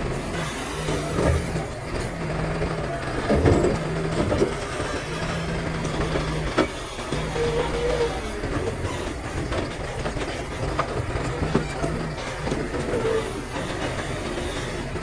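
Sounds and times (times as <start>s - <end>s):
excavator diesel engine running: 0.0s - 15.0s
rock clunking and scraping: 3.2s - 13.4s.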